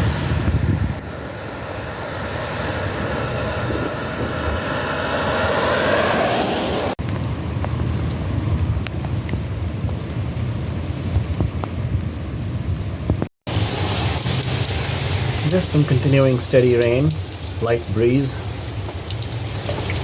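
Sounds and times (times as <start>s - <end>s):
wind rumbling on microphone: 0.0s - 20.0s
tyres hissing on wet road: 1.1s - 7.0s, 13.5s - 20.0s
light rain: 7.0s - 20.0s
raindrop ticks: 13.5s - 20.0s.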